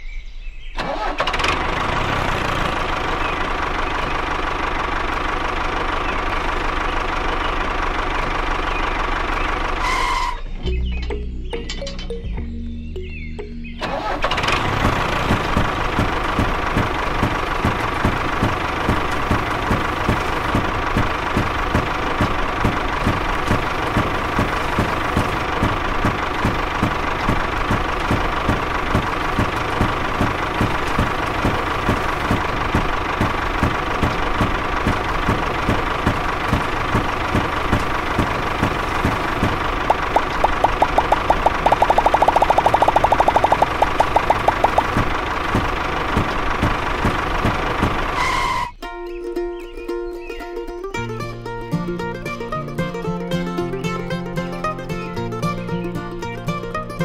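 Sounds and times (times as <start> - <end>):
tractor engine knocking: 0.8 - 11.8, 13.4 - 48.7
rapid clicks: 14.1 - 48.2.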